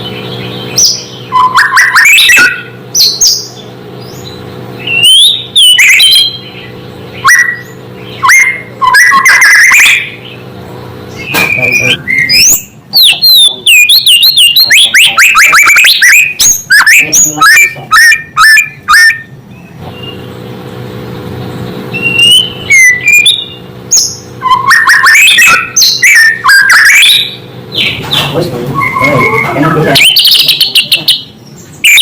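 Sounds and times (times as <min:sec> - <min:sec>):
bird singing whistled notes: 0:00.0 - 0:10.4, 0:11.1 - 0:20.3, 0:21.9 - 0:32.0
steady low hum: 0:00.0 - 0:32.0.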